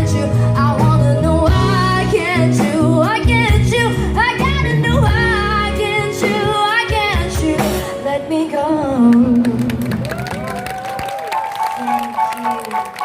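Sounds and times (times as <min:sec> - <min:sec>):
bass line: 0:00.0 - 0:07.8
live band music: 0:00.0 - 0:13.0.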